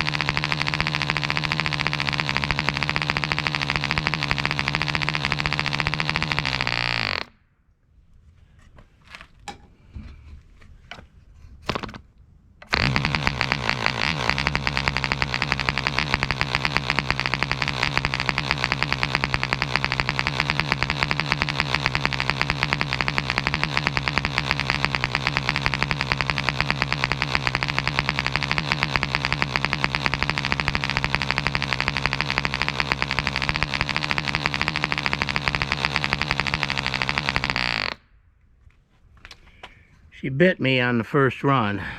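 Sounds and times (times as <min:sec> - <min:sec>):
model airplane engine running: 0:00.0 - 0:07.3, 0:12.7 - 0:38.0
propeller clicks: 0:00.0 - 0:07.3, 0:12.6 - 0:38.0.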